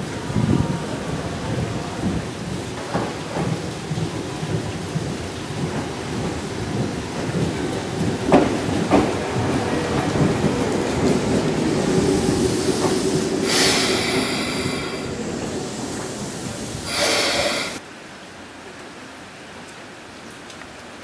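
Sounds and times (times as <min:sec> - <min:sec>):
train wheels rumbling: 0:00.0 - 0:17.8
loud hiss bursts: 0:11.6 - 0:17.8.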